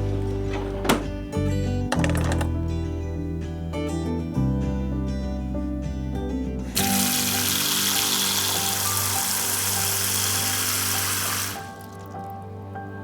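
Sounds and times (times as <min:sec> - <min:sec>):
background music: 0:00.0 - 0:13.0
water running from a tap: 0:06.8 - 0:12.3.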